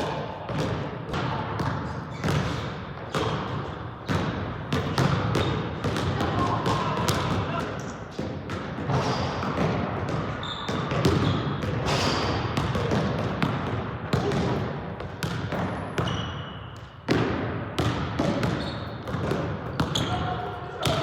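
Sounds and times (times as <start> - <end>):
basketball bouncing on gym floor: 0.0 - 21.0
shoe squeaks: 10.3 - 12.3, 15.7 - 16.8, 18.4 - 19.1, 19.7 - 20.5
crowd chatter: 20.0 - 21.0.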